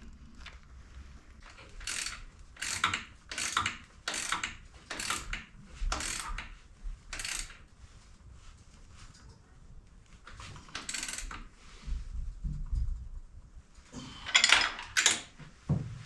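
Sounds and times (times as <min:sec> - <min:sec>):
ratchet wrench clicking: 0:01.5 - 0:06.5, 0:07.1 - 0:07.6, 0:10.7 - 0:11.4.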